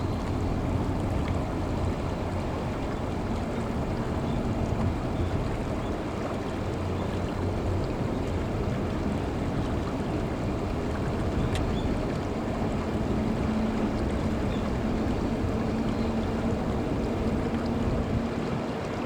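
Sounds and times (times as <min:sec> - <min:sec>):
wind over open water: 0:00.0 - 0:19.0
faint steady hum: 0:07.8 - 0:18.3.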